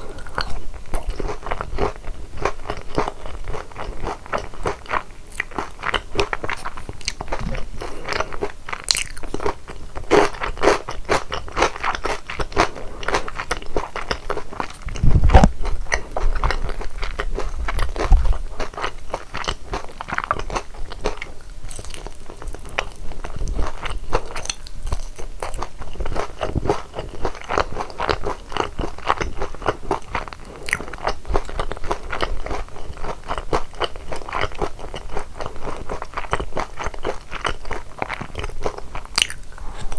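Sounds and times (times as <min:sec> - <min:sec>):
crunching and chewing fried chicken: 0:00.0 - 0:39.9
heavy low thuds: 0:14.8 - 0:15.7.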